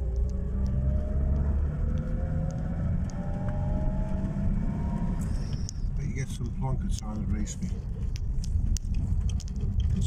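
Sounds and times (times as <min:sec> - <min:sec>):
rising whine: 0:00.0 - 0:05.5
car engine drone: 0:00.0 - 0:10.0.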